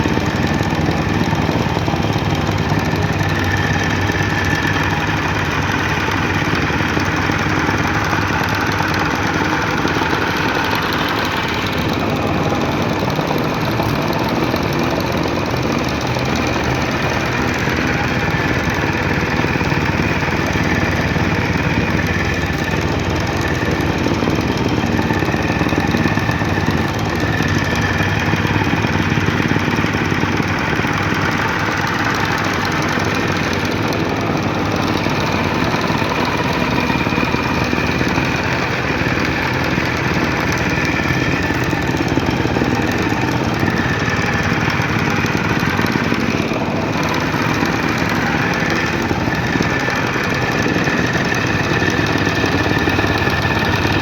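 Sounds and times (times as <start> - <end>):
soil compactor engine pounding: 0.0 - 54.0.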